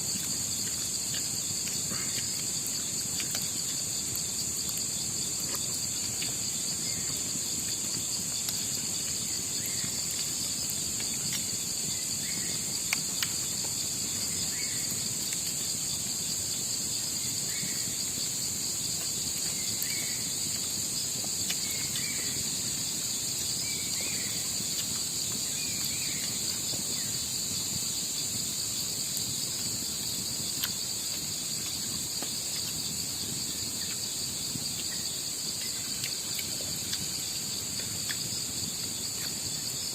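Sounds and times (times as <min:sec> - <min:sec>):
crickets and night insects chirping: 0:00.0 - 0:39.9.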